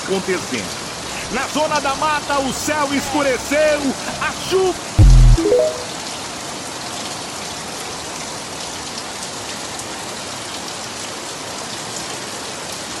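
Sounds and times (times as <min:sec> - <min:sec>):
heavy rain hissing: 0:00.2 - 0:05.0.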